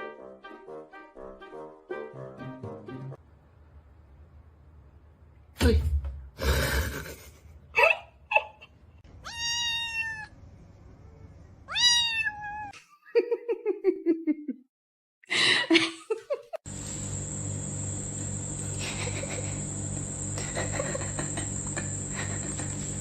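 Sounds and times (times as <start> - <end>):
cat meowing: 9.2 - 10.3, 11.7 - 12.8.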